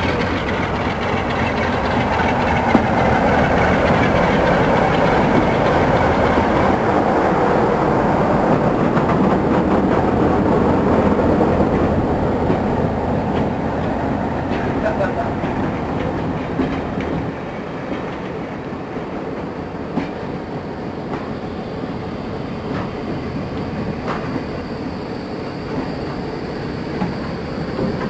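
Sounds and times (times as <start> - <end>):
train wheels clicking: 0.0 - 20.4, 21.0 - 21.5, 22.4 - 28.0
train coaches rumbling on rails: 0.0 - 28.0.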